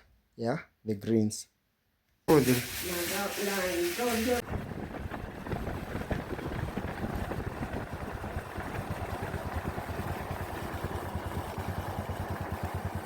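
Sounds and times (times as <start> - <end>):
motorcycle engine running: 4.3 - 13.0.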